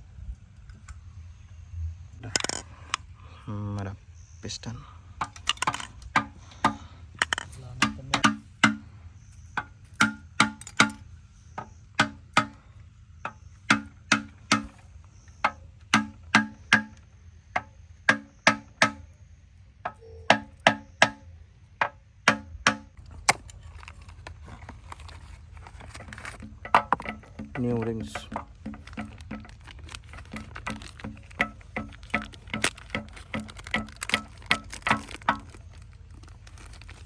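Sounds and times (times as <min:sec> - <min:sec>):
sharp knocks on engine parts: 0:05.2 - 0:19.2, 0:19.8 - 0:23.5, 0:25.2 - 0:36.8.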